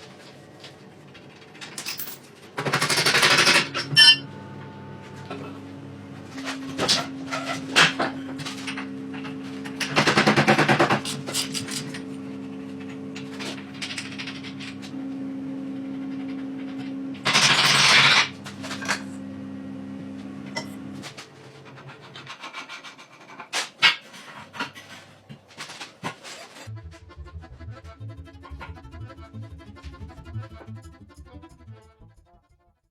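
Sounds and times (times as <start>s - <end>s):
machine hum: 2.8s - 21.7s, 26.7s - 32.2s.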